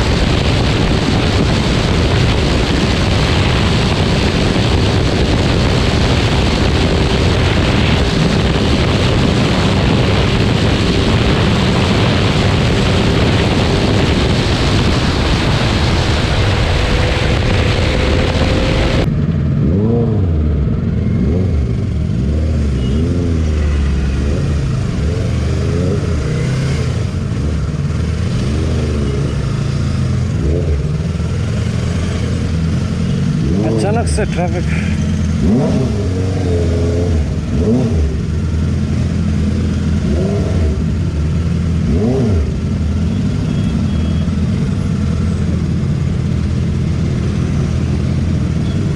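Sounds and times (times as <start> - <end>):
wind rushing over microphone: 0.0 - 22.6
motorcycle engine revving: 0.0 - 48.9.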